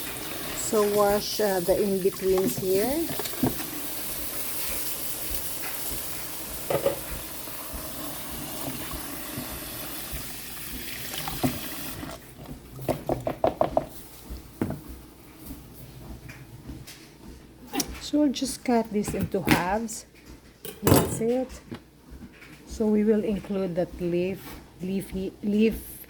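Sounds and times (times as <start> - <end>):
tap water running: 0.0 - 14.0.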